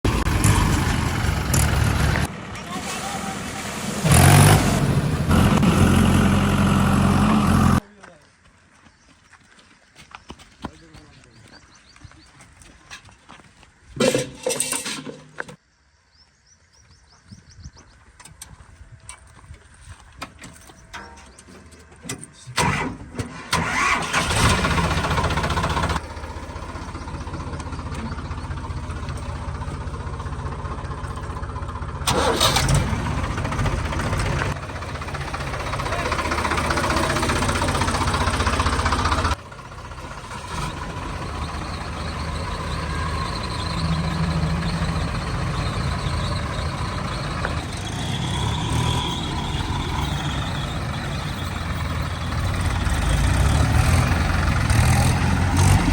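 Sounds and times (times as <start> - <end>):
diesel engine starting and running: 0.0 - 7.9, 20.6 - 55.9.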